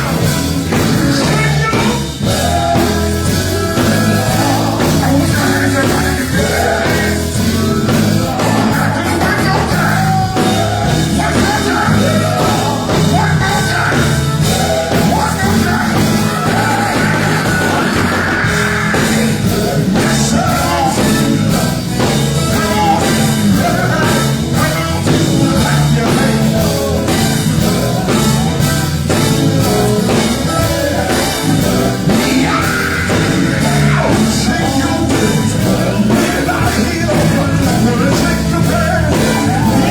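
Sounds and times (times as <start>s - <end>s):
drums steady beat: 0.0s - 39.9s
gospel group singing: 0.0s - 39.9s
live band playing: 0.0s - 39.9s.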